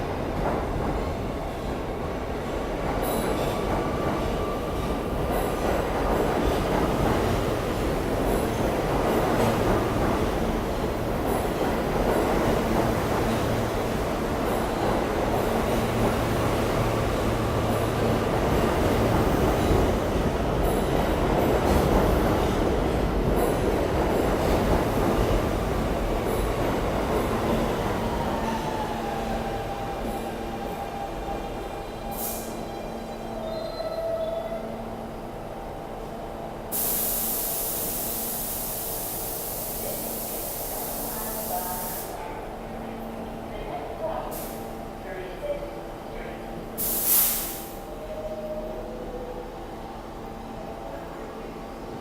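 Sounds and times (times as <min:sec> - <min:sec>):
subway train rumbling on rails: 0:00.0 - 0:52.0
air brakes hissing: 0:32.0 - 0:32.7, 0:36.7 - 0:42.2, 0:46.8 - 0:47.9.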